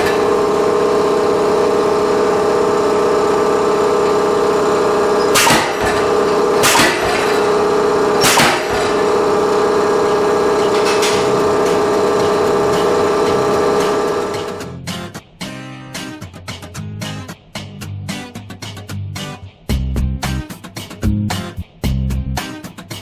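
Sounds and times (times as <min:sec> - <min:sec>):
air compressor droning: 0:00.0 - 0:14.8
power hammer striking steel: 0:04.0 - 0:14.7.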